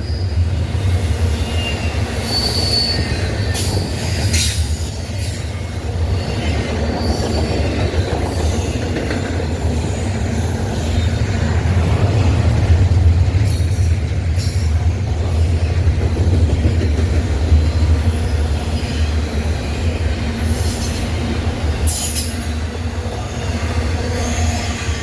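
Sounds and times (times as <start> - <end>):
train wheels rumbling on rail: 0.0 - 25.0
wheel squeal: 1.3 - 4.6, 5.2 - 8.8.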